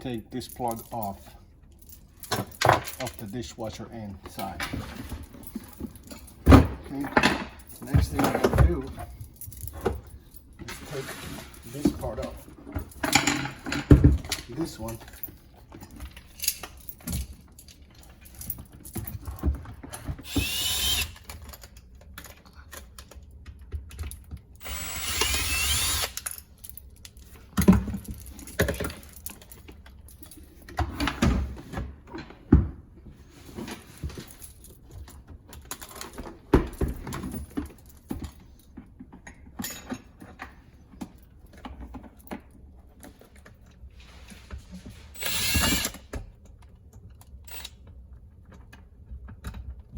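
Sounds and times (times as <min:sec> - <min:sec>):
power drill running: 0:20.2 - 0:21.2, 0:24.6 - 0:26.2, 0:45.2 - 0:46.0.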